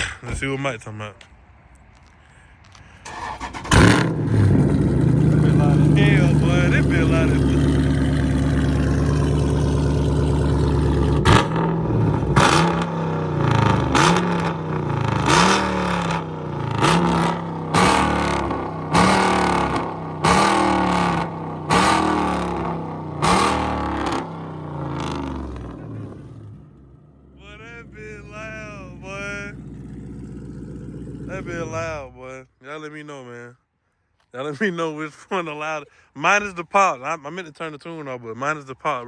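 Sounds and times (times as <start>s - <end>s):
engine revving with sharp cracks: 3.0s - 32.1s
car engine idling: 3.0s - 32.3s.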